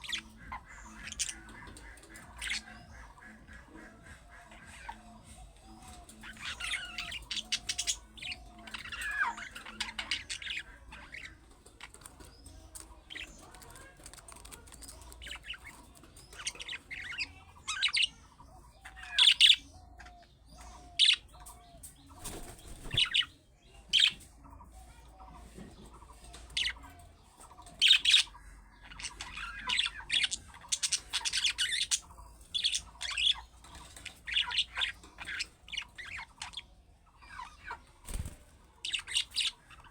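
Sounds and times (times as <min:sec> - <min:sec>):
budgerigars chattering: 0:00.0 - 0:24.2, 0:26.0 - 0:39.9.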